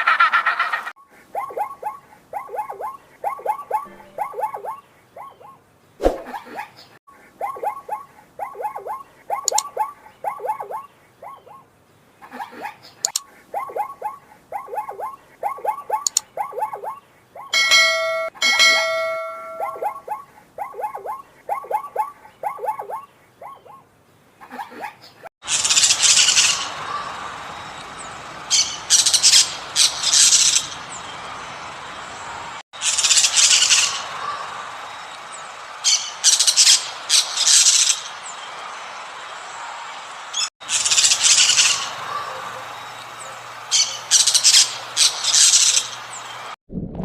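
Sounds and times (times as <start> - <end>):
harsh bird squawks: 0.0 - 6.7, 19.1 - 23.8
bird held calls: 0.1 - 6.6, 7.3 - 11.6, 13.0 - 23.8
birds chirping: 1.3 - 23.9, 39.6 - 46.6.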